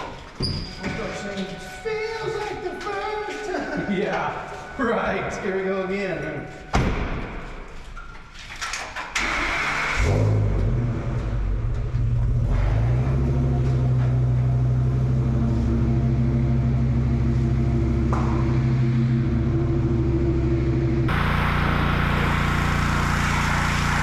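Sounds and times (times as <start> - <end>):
truck engine starter cranking: 8.5 - 10.2
truck engine idling: 13.4 - 24.0.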